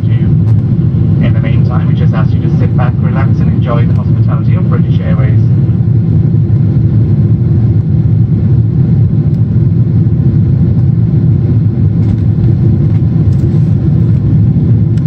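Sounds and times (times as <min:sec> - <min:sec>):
airplane cabin engine drone: 0:00.0 - 0:15.0.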